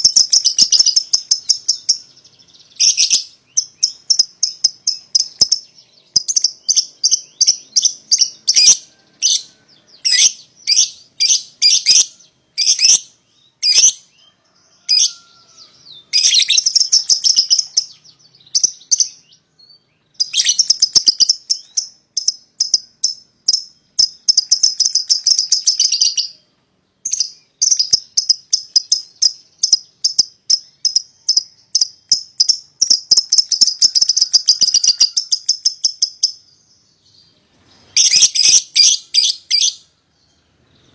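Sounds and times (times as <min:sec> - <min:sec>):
lovebirds chattering trills: 0:00.0 - 0:19.3
lovebirds chirping: 0:00.0 - 0:40.9.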